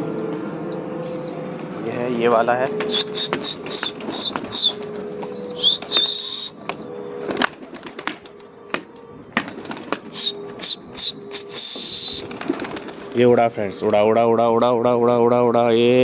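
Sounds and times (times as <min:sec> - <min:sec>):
birds chirping: 0:00.0 - 0:14.2
whistled bird note: 0:02.6 - 0:07.1, 0:10.1 - 0:12.4
pigeon wings flapping: 0:02.8 - 0:08.5, 0:09.4 - 0:13.4.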